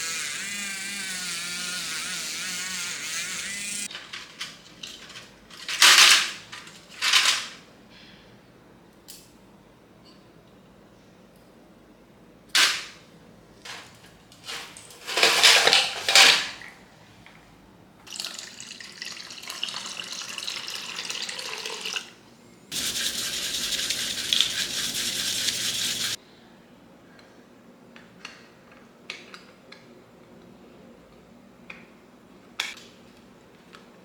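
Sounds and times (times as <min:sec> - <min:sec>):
nozzle spraying water: 0:22.7 - 0:26.2.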